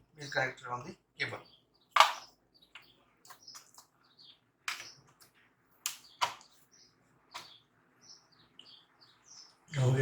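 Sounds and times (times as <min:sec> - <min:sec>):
faint bird chirping: 0:00.0 - 0:10.0
clicks of laptop parts: 0:01.9 - 0:03.9, 0:04.6 - 0:06.6.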